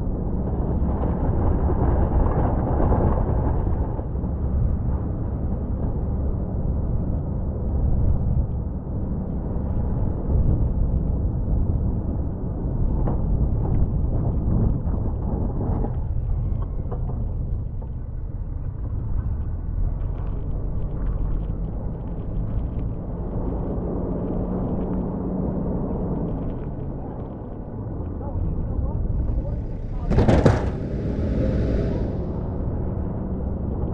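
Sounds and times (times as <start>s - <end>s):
truck engine rumbling under load: 28.3s - 33.9s
knocks and clatters: 29.1s - 31.2s.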